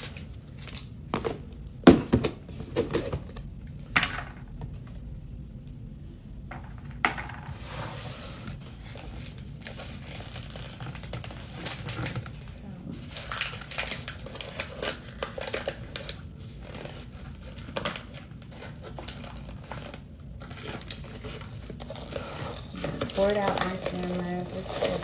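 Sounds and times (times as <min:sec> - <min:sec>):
packaging crinkling: 0:08.6 - 0:25.0.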